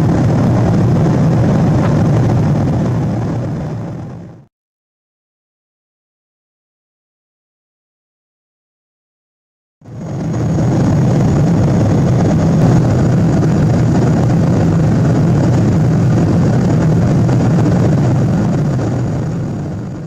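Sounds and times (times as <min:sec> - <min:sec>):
airplane cabin rumble: 0:00.0 - 0:04.5, 0:09.8 - 0:20.0.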